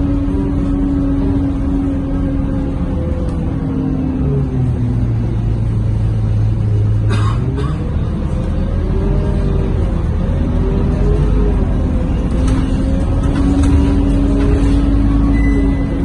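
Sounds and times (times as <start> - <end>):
bus engine humming and whining: 0.0 - 16.0.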